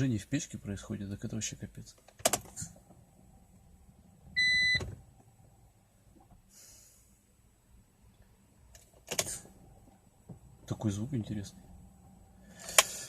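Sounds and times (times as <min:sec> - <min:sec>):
car warning chime beep: 0:04.4 - 0:04.9.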